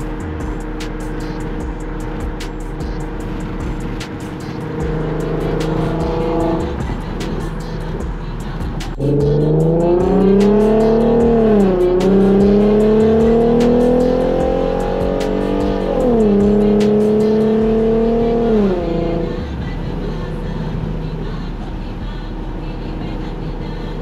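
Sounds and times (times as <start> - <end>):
car exhaust accelerating with gear shifts: 0.0 - 24.0.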